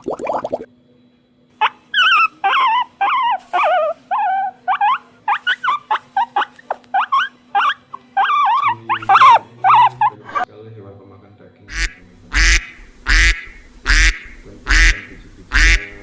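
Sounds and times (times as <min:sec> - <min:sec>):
high-pitched whining animal calls: 0:01.6 - 0:10.5.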